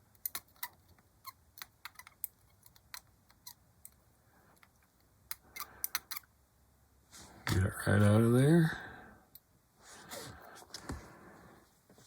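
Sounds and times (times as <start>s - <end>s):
tweezers clicking in a bottle: 5.3s - 6.3s.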